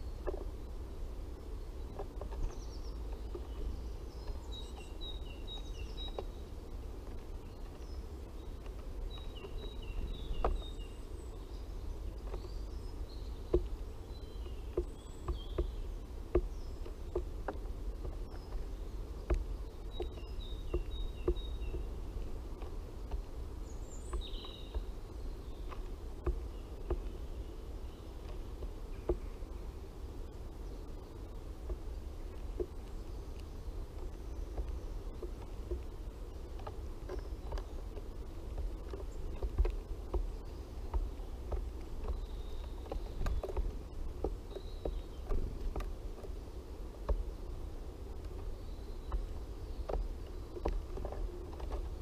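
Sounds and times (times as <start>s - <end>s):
low steady rumble: 0.0s - 52.0s
small birds singing: 0.0s - 52.0s
beaks pecking at seed: 1.8s - 52.0s.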